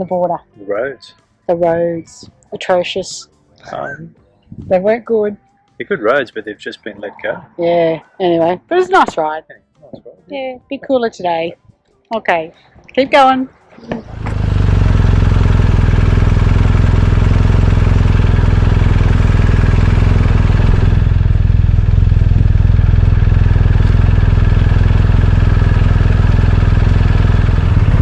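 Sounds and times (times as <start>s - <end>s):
motorcycle engine running: 13.9s - 28.0s.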